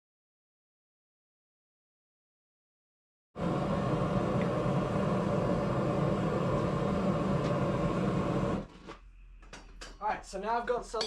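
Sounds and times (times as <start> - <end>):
gas forge burner roaring: 3.4 - 10.4.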